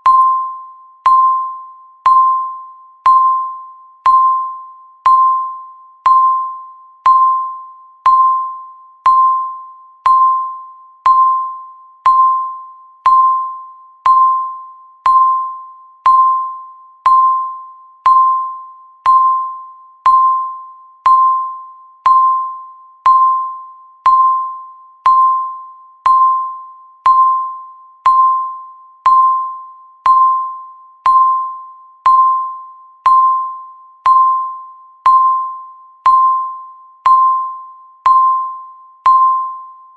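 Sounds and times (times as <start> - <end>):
timer electronic beeps: 0.0 - 39.9.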